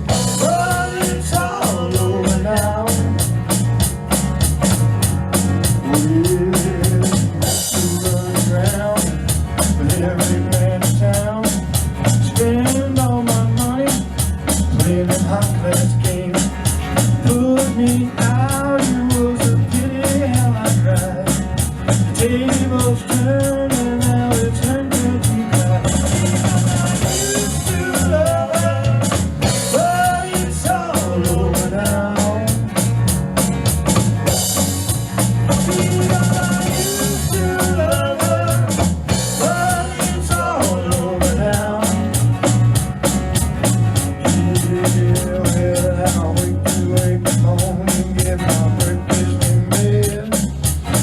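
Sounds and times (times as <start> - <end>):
drum kit beat with rimshots: 0.0 - 51.0.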